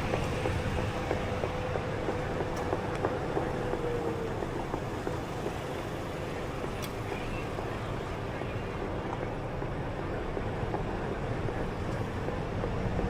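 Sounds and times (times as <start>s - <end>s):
city traffic noise: 0.0s - 13.0s.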